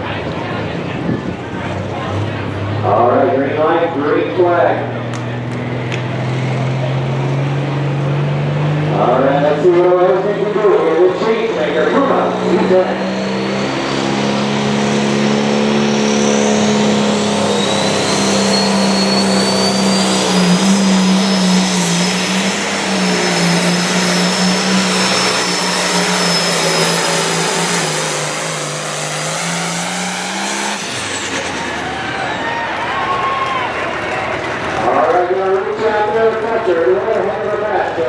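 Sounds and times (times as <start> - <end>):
diesel engine at full throttle: 0.0 - 38.0
high turbo whistle: 12.5 - 33.8.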